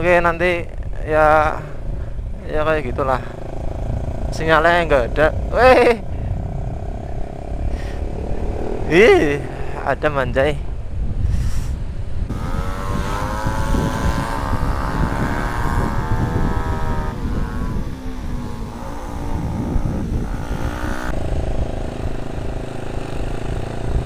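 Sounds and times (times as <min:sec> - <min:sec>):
wind and road noise: 0:00.0 - 0:24.0
motorcycle engine running: 0:01.6 - 0:09.8, 0:12.3 - 0:24.0.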